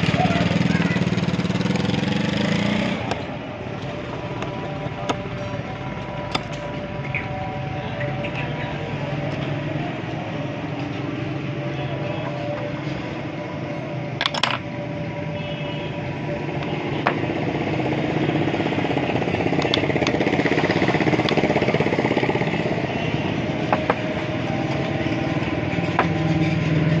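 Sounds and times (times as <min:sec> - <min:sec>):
engine running: 0:00.0 - 0:27.0
sharp metallic clicks: 0:19.4 - 0:21.8.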